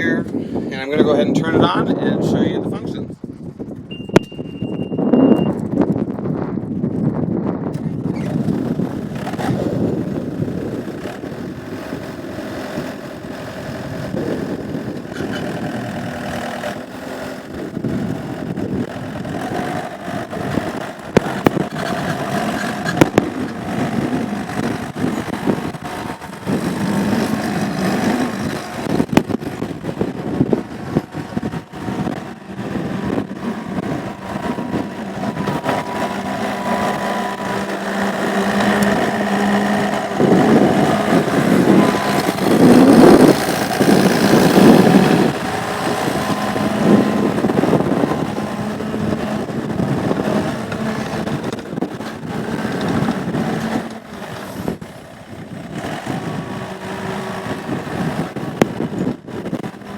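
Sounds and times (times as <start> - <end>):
diesel skid steer engine: 3.8 - 59.9.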